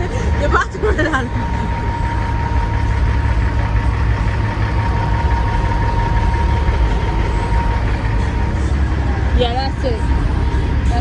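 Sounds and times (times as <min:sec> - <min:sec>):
diesel truck engine idling: 0:00.0 - 0:11.0
thin steady whine: 0:00.0 - 0:11.0.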